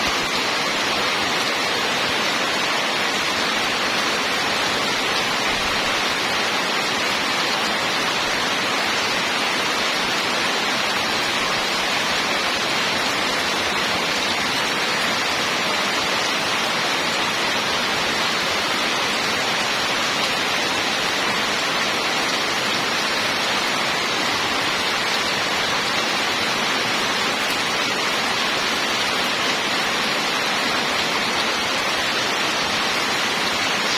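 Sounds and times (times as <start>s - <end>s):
heavy rain hiss: 0.0s - 33.9s.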